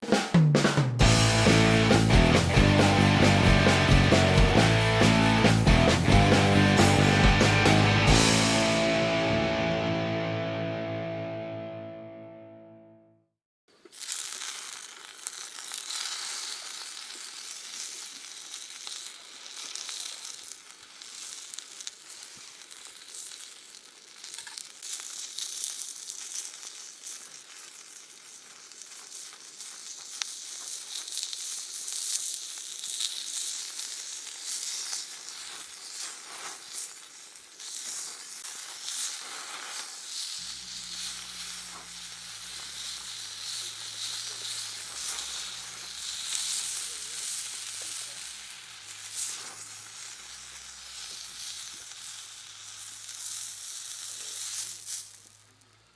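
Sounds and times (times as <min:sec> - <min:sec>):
food sizzling in a pan: 0:00.0 - 0:11.7, 0:13.7 - 0:55.9.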